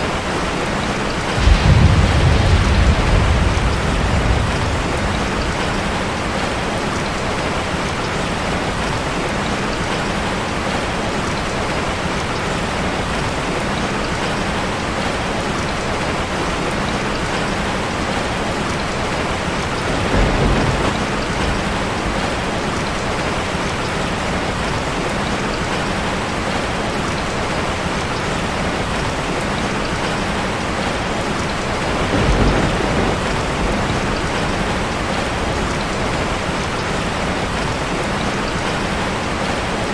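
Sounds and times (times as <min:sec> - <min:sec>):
rain drumming on metal roof: 0:00.0 - 0:39.9
low rumbles: 0:01.4 - 0:07.0.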